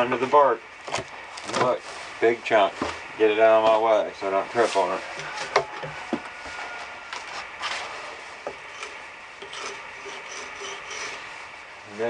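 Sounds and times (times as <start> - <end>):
hatchet scraping bark off log: 8.5 - 11.2.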